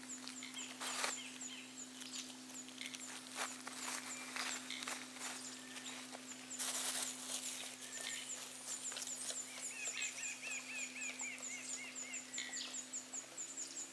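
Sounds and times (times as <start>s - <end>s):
rustling: 2.3s - 9.4s
lower bird chirps: 7.4s - 13.9s.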